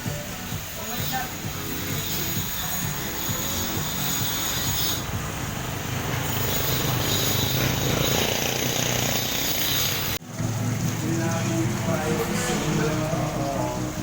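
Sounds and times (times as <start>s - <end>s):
pressure washer spray hiss: 0.0s - 10.2s
pump motor hum: 0.0s - 14.0s.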